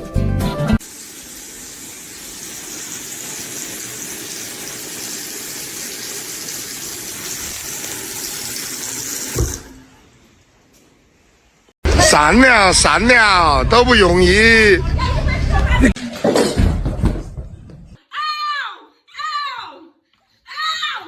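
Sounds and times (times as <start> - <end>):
thump: 9.4 - 9.7.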